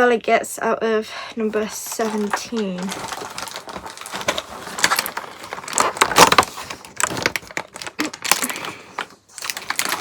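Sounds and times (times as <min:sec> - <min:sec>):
cardboard clicks and cracks: 0:03.1 - 0:10.0.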